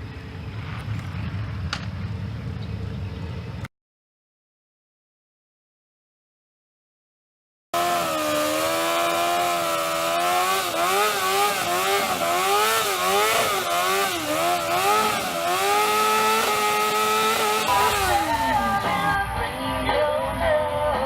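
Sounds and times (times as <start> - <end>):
motorcycle engine revving: 7.8 - 19.5.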